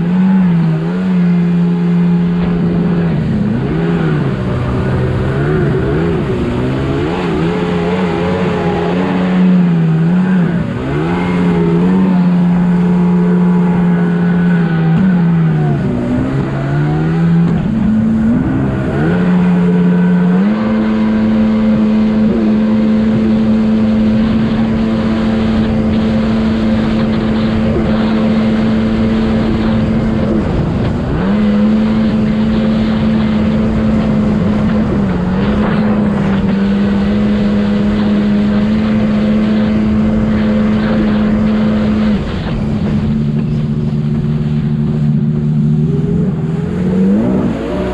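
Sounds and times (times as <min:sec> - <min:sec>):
jet ski engine revving: 0:00.0 - 0:47.9.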